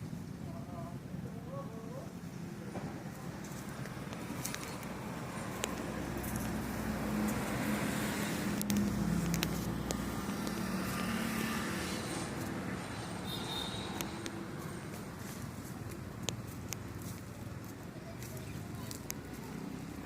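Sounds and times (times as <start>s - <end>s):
vehicle engine running: 0.0s - 20.0s
sharp clicks: 8.5s - 10.7s.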